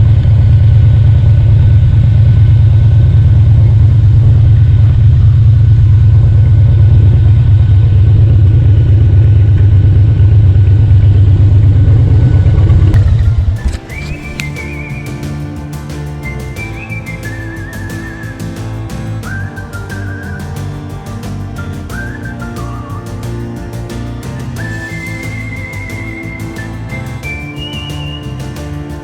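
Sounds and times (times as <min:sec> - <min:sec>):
motorcycle engine droning: 0:00.0 - 0:29.0
music with whistled melody: 0:13.0 - 0:29.0.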